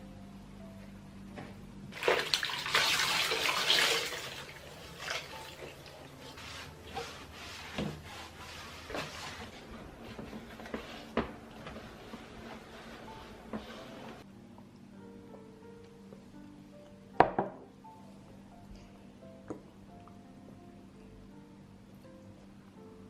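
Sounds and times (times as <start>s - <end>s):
water running from a tap: 2.0s - 6.0s.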